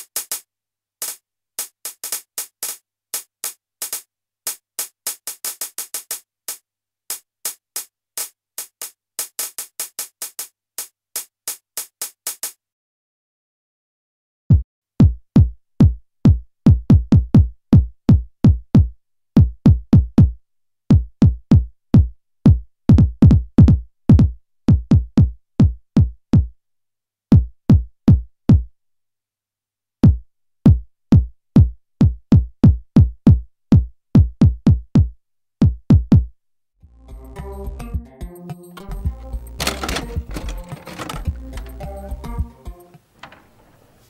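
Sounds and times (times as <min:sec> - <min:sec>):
drum machine kick drum: 0:14.5 - 0:26.5, 0:27.3 - 0:28.7, 0:30.0 - 0:36.3.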